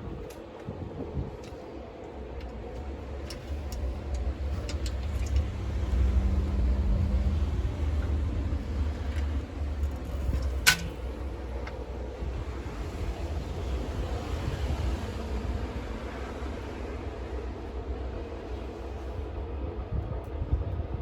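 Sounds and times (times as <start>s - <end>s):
wind gusting against microphone: 0.0s - 21.0s.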